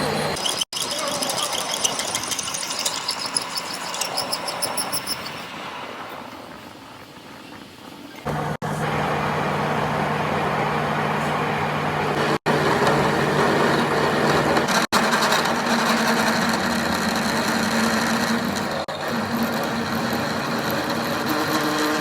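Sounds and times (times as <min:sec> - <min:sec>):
metalworking machine humming: 0:08.2 - 0:22.0.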